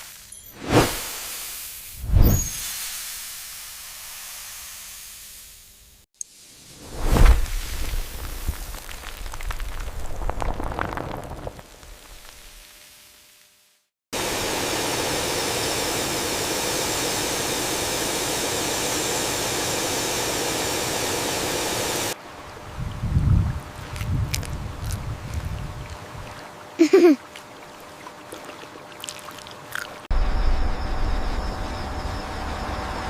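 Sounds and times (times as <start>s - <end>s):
rushing hiss: 0.8s - 9.2s
steady even hiss: 1.0s - 8.9s.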